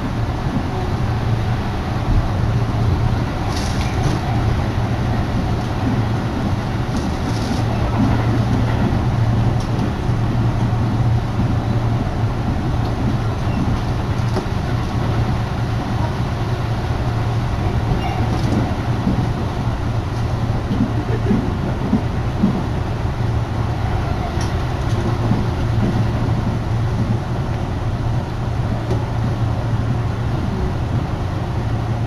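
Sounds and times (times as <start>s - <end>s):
train rumble inside car: 0.0s - 32.0s.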